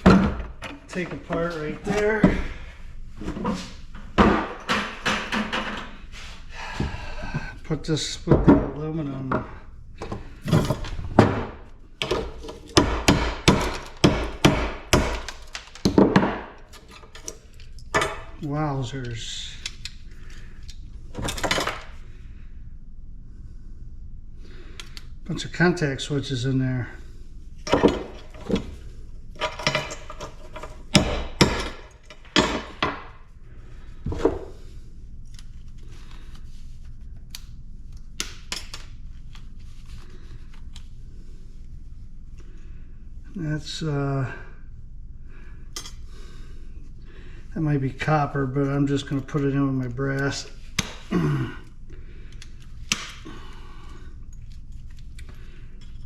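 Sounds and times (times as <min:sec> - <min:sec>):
metal parts clanking and knocking: 0:00.0 - 0:02.4, 0:03.2 - 0:06.0, 0:13.5 - 0:19.9, 0:20.6 - 0:21.9, 0:27.7 - 0:33.2
hammer striking metal: 0:30.9 - 0:33.1.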